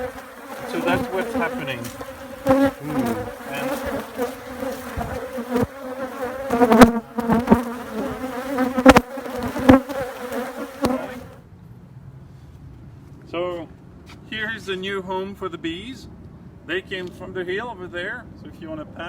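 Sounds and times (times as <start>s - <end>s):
bees buzzing: 0.0s - 11.4s.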